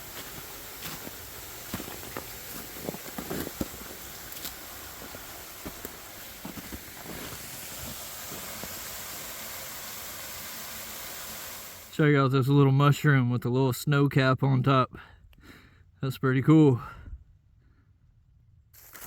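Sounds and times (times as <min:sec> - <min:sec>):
footsteps in snow: 0:00.0 - 0:08.6
steady rushing hiss: 0:00.0 - 0:12.0.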